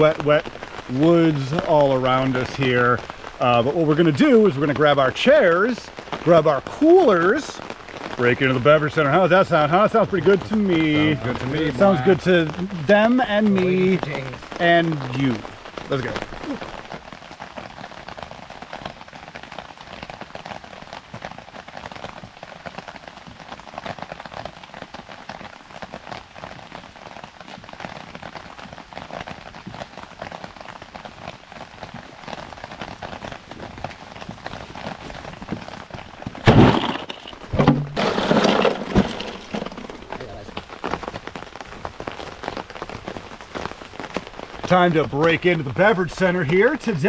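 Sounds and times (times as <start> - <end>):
heavy rain on a tarp: 0.0 - 47.0
loud close bumps: 36.2 - 41.1.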